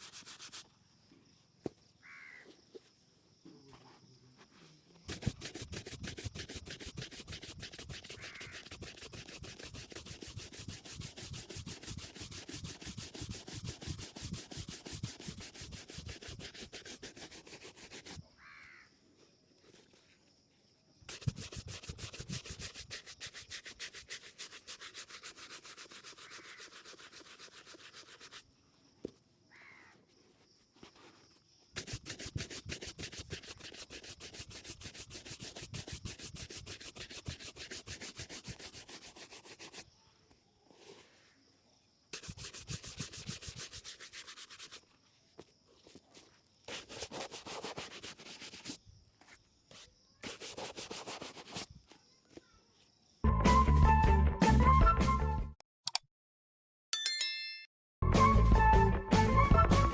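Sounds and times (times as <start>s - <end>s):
shoe buffing strokes: 0.0s - 0.7s, 5.1s - 18.3s, 21.1s - 28.5s, 31.8s - 39.9s, 42.1s - 51.7s.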